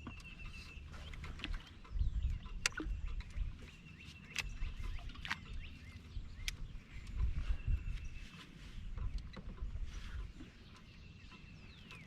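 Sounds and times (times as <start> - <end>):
birds singing and calling: 0.0 - 12.0
low steady rumble: 0.0 - 12.0
sharp clicks: 2.5 - 3.4.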